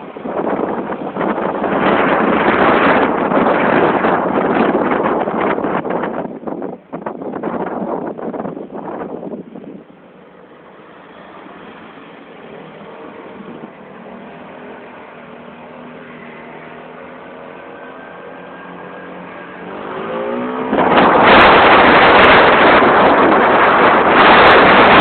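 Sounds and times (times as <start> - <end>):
wind buffeting microphone: 0.0 - 25.0
vehicle engine revving: 12.4 - 25.0.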